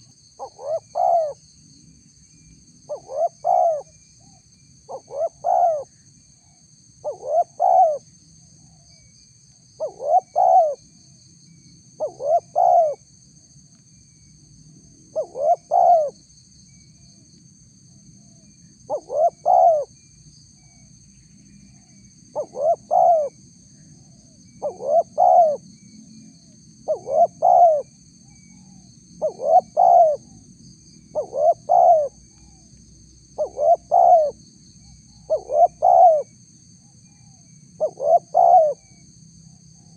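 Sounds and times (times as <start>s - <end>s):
dove cooing: 0.0s - 1.4s, 2.9s - 3.9s, 4.9s - 5.9s, 7.0s - 8.0s, 9.8s - 10.8s, 12.0s - 13.0s, 15.2s - 16.2s, 18.9s - 19.9s, 22.4s - 23.3s, 24.6s - 25.6s, 26.9s - 27.9s, 28.6s - 30.3s, 31.1s - 32.2s, 33.4s - 34.4s, 35.2s - 36.3s, 37.8s - 38.9s.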